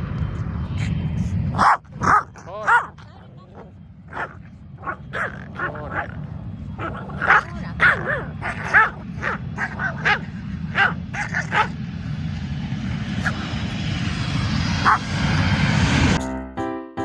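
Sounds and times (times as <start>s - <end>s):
jet aircraft engine: 0.0s - 16.2s
low rumble: 0.0s - 16.2s
small dog yapping: 1.6s - 11.8s, 13.0s - 15.3s.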